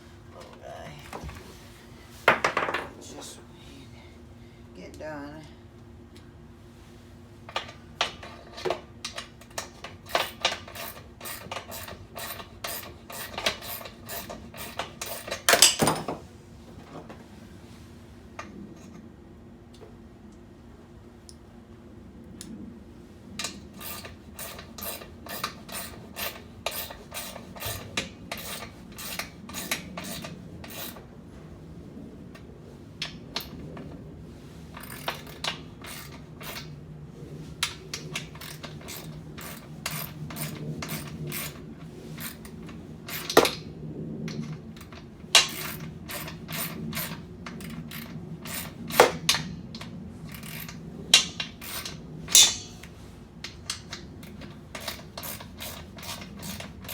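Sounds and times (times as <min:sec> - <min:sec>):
metal knocks: 0:52.3 - 0:52.9.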